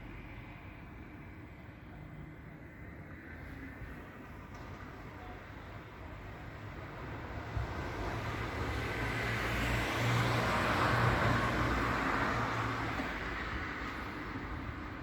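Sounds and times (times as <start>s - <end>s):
passing vehicle engine hum: 7.5s - 15.0s.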